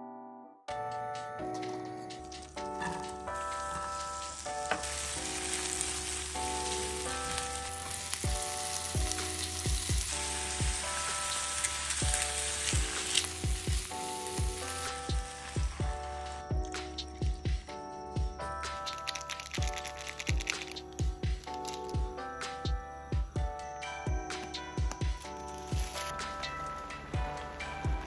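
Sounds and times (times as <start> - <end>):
background music with a beat: 0.7 - 28.0
food sizzling in a frying pan: 4.2 - 15.8.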